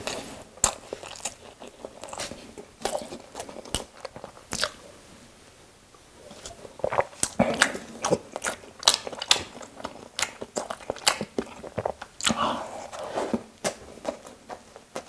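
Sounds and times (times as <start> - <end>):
chewing sandwich mouth clicks: 0.0 - 4.8, 6.4 - 12.4
soft wet mouth sound: 6.3 - 13.1.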